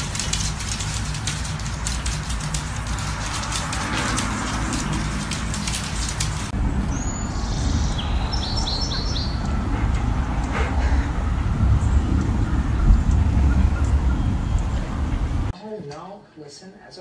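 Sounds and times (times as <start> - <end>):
rapid clicking and crackle: 0.0 - 6.6
steady low rumble: 0.0 - 15.5.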